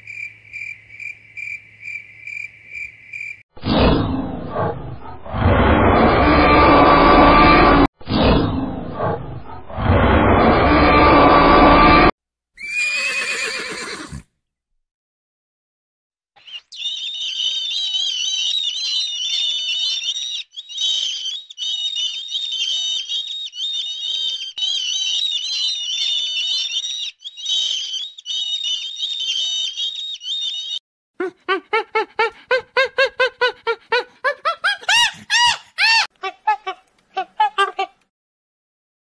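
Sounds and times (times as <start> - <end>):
seabirds calling: 16.4 - 36.1
animal giving rapid pitched calls: 16.5 - 36.1.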